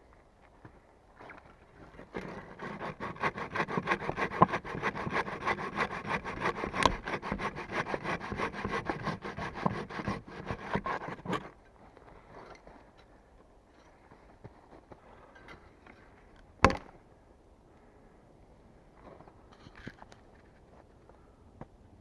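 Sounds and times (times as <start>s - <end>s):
hand saw cutting wood: 2.0s - 11.6s.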